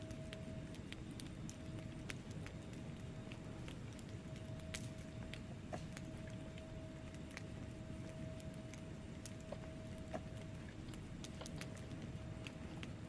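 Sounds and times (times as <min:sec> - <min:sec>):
fire flames rumbling: 0:00.0 - 0:13.0
logs crackling and popping: 0:00.0 - 0:13.0.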